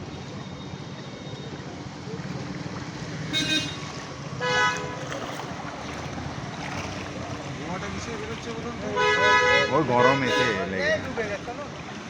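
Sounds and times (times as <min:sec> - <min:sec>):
vehicle horn honking: 0:03.3 - 0:05.0, 0:08.9 - 0:10.7.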